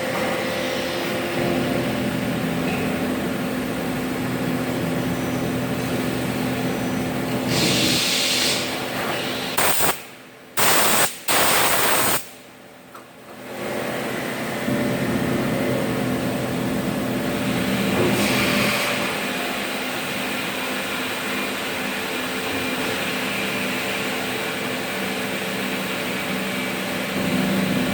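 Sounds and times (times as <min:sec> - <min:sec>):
loud hissing blasts: 0:10.6 - 0:12.3.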